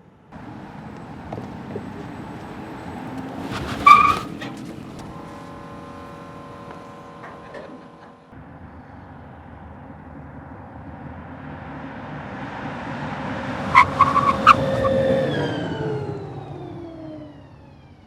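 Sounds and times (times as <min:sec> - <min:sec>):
car passing by: 0:00.8 - 0:06.8, 0:10.8 - 0:17.8.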